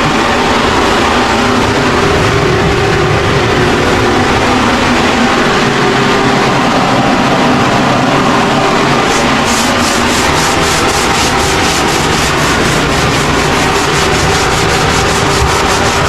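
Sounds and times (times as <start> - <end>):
machine hum: 0.0 - 16.0
sanding strokes: 9.0 - 16.0.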